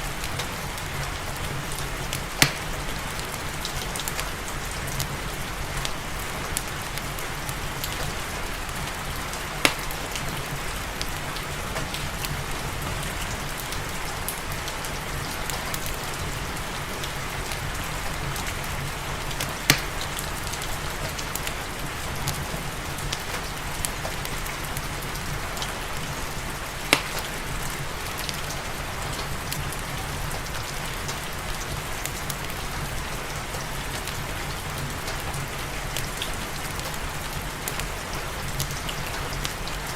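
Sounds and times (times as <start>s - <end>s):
steady rain falling: 0.0s - 39.9s
wood fire crackling: 0.0s - 39.9s
sharp fire pops: 2.4s - 2.8s, 9.6s - 10.1s, 19.4s - 20.2s, 26.9s - 27.5s.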